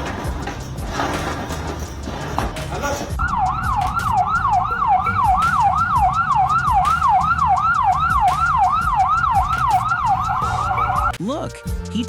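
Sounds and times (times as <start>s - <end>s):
siren yelping: 3.2s - 11.2s.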